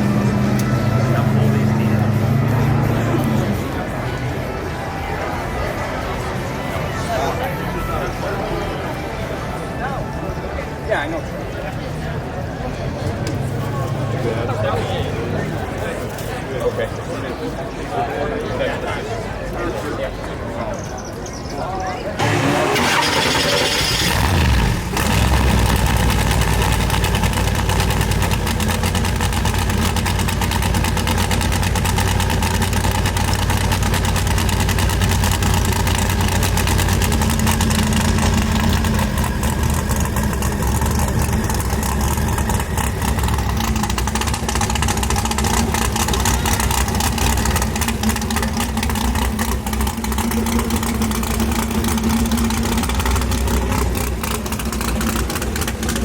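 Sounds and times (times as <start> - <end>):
car engine running: 22.2 - 56.0.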